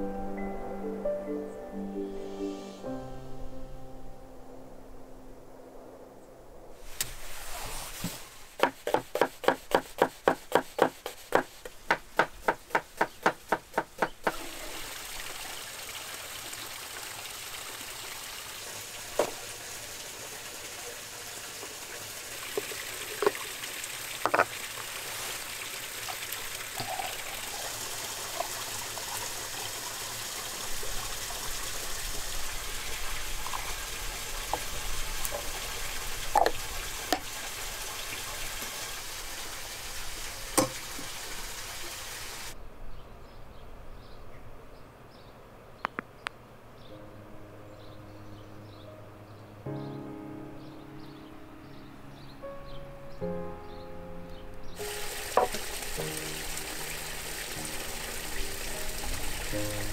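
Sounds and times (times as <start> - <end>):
sharp knocks: 8.6 - 14.4
food sizzling in a pan: 18.4 - 37.9, 54.8 - 59.9.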